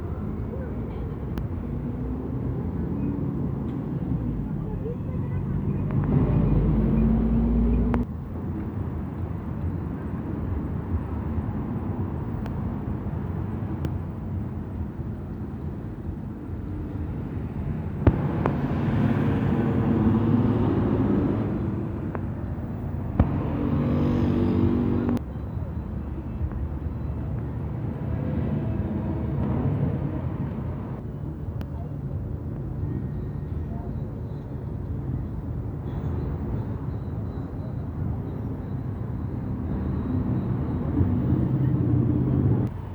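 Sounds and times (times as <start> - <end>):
bus engines passing: 0.0 - 42.9
traffic: 0.0 - 42.9
loud low rumble: 18.0 - 22.1, 23.0 - 25.2.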